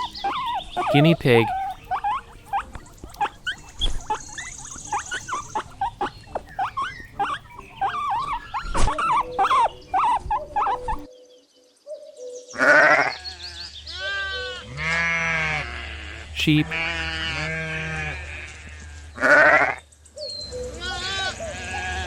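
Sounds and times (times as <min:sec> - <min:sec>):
guinea pig squeaking: 0:00.0 - 0:11.1.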